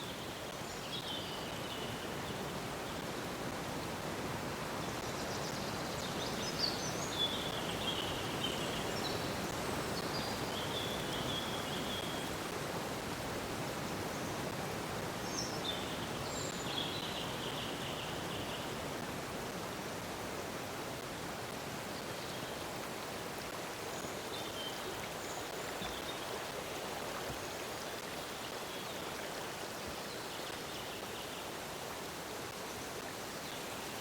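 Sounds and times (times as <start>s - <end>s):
water flowing: 18.7s - 34.0s.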